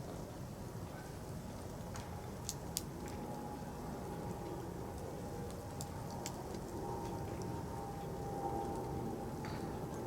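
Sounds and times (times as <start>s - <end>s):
burning firewood crackling: 0.1s - 10.0s.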